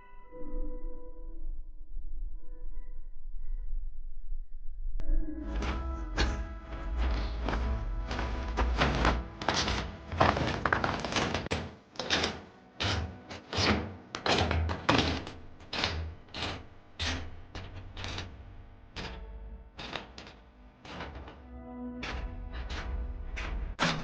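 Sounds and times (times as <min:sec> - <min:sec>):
faint music: 0:05.0 - 0:24.0.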